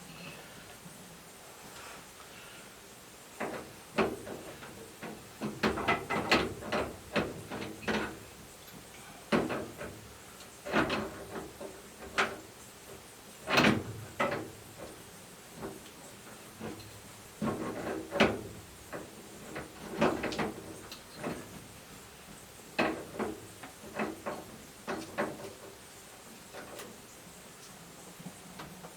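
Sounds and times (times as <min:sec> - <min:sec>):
hose fittings clunking and rattling: 0:03.4 - 0:15.0, 0:15.6 - 0:21.6, 0:22.7 - 0:25.8.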